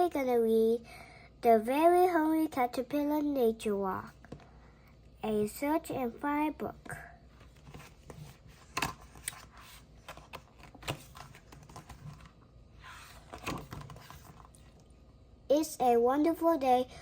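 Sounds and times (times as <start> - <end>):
paper page rustling: 7.4 - 14.8.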